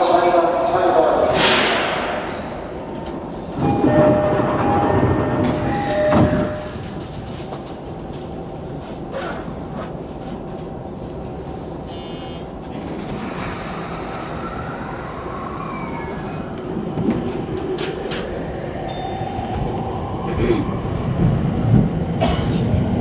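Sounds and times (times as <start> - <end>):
wheels rumbling on rails: 1.9 - 23.0.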